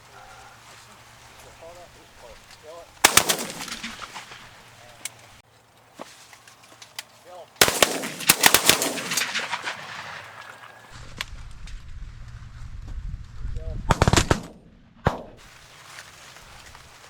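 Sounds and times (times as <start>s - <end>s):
shotgun shots: 3.0s - 5.0s, 7.6s - 11.0s, 13.9s - 15.5s.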